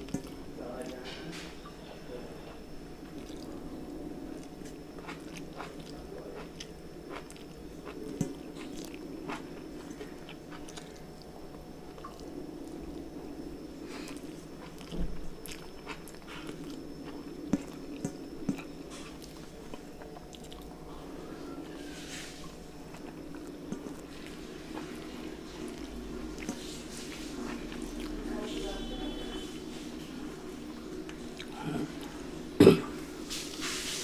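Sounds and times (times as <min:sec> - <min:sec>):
man chewing with mouth smacks: 0:00.0 - 0:00.4, 0:03.0 - 0:03.6, 0:04.4 - 0:12.8, 0:14.0 - 0:20.8, 0:22.4 - 0:25.0, 0:25.6 - 0:28.1, 0:31.0 - 0:32.1
steady background hum: 0:00.0 - 0:34.0.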